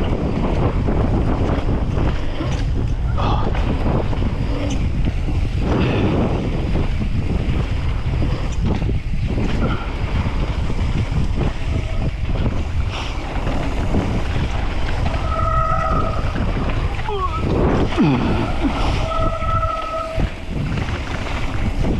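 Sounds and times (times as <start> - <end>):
bike rattling over rough trail: 0.0 - 21.9
wind buffeting microphone: 0.0 - 21.9.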